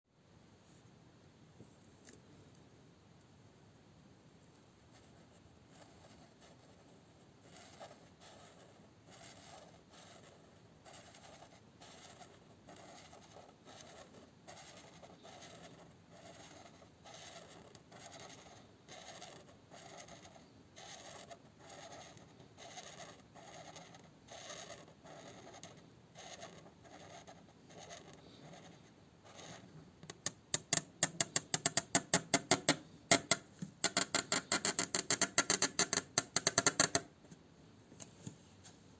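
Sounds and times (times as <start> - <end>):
drawing tool scratching paper: 4.9 - 29.7.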